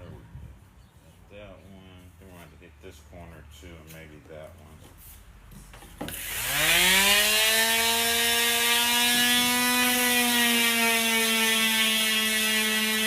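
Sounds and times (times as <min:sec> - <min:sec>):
power tool motor whining: 0:06.1 - 0:13.0.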